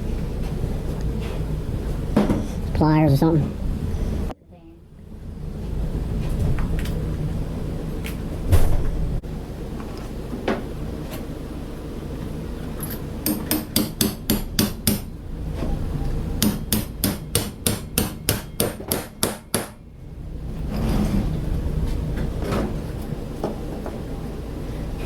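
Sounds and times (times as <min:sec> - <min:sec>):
hammer striking bolt: 0:13.2 - 0:15.1, 0:16.4 - 0:19.8.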